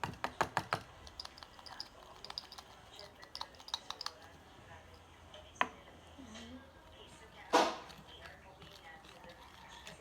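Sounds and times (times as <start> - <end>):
spoon tapping against bowl: 0.0 - 4.4.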